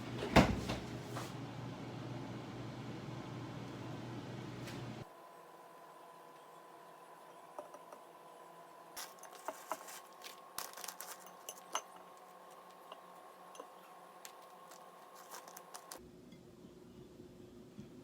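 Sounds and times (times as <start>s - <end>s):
clinks of small hard objects: 9.0s - 12.9s.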